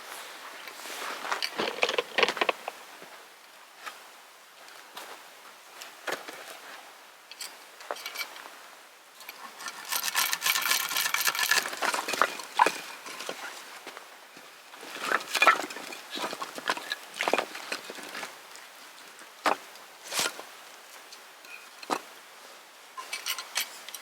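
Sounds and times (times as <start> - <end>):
camp gear clattering: 0.8 - 2.9, 7.3 - 8.5, 9.2 - 22.1, 23.0 - 24.0
scrapes and knocks of wood: 1.0 - 2.8, 9.3 - 14.0, 19.4 - 20.5.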